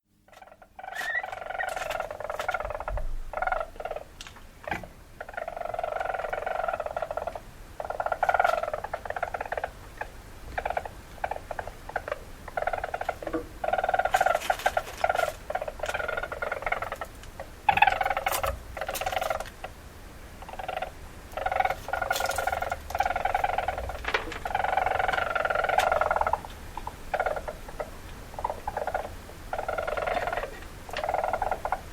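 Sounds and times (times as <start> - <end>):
bird of prey harsh rattling calls: 0.8 - 2.9.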